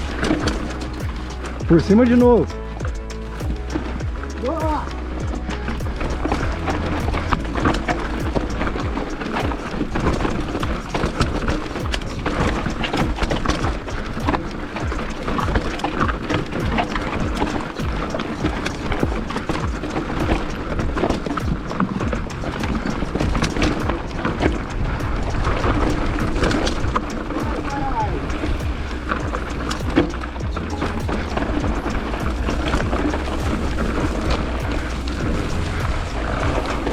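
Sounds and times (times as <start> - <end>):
bike rattling over rocks: 0.0 - 36.9
steady rushing noise: 0.0 - 36.9.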